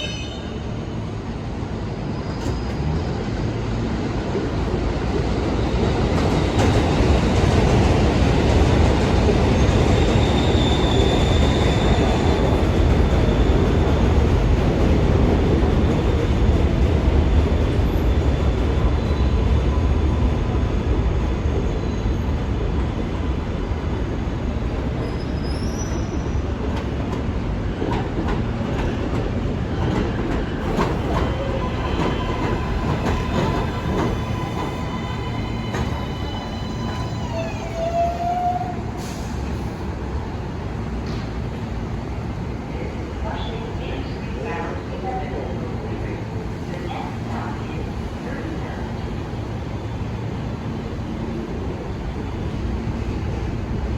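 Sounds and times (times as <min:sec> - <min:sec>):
subway train rumbling on rails: 0:00.0 - 0:53.9
high wheel squeal: 0:09.6 - 0:12.4, 0:30.7 - 0:39.4.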